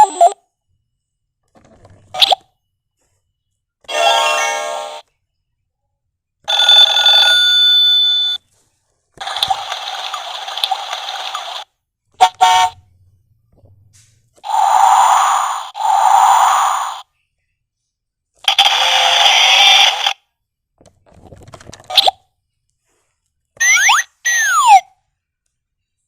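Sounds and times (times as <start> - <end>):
electronic toy sound effects: 14.4 - 17.1, 18.4 - 20.2, 23.6 - 25.0.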